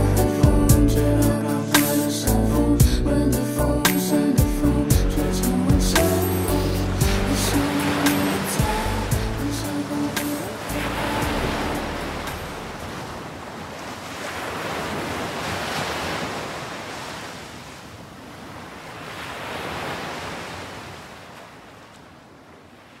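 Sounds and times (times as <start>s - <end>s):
ocean surf on beach: 6.0s - 23.0s.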